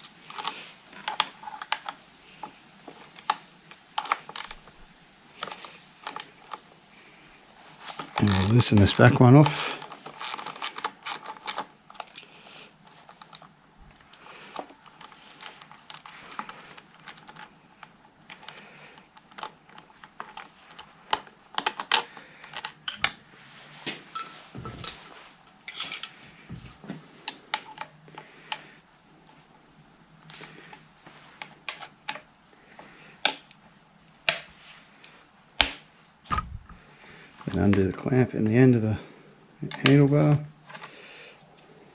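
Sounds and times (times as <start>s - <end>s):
hand tools clicking on metal: 7.9s - 12.3s.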